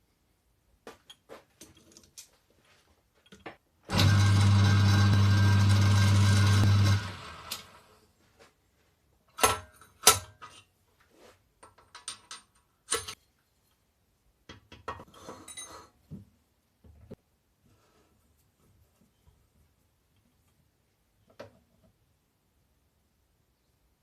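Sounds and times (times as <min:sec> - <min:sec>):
electric motor running: 0:03.9 - 0:07.8.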